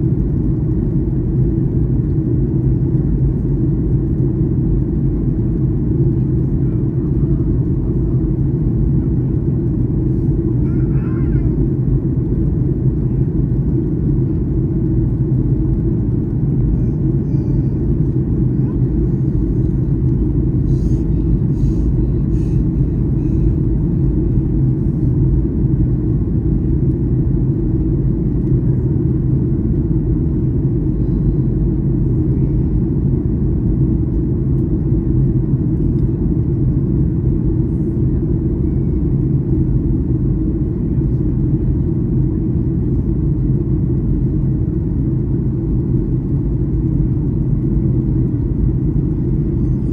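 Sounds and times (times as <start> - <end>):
airliner cabin engine rumble: 0.0 - 49.9.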